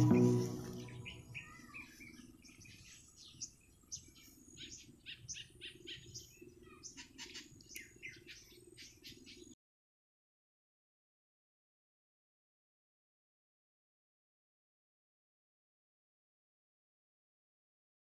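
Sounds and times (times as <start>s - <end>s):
birds chirping: 0.0s - 9.6s.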